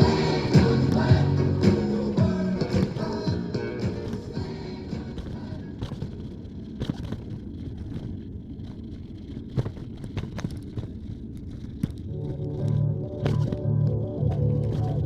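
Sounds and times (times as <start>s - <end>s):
music: 0.0s - 5.6s, 12.1s - 15.0s
tyre and wind rumble: 0.0s - 15.0s
bicycle clicks and rattles: 5.2s - 15.0s.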